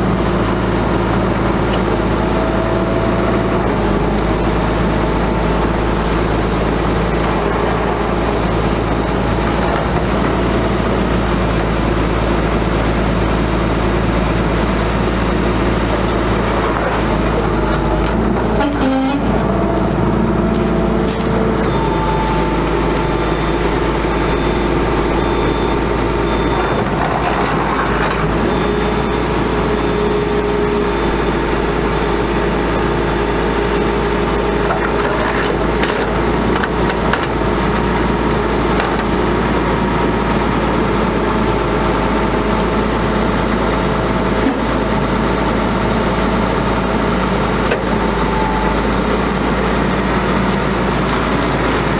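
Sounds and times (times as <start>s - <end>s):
diesel truck engine running: 0.0s - 51.9s.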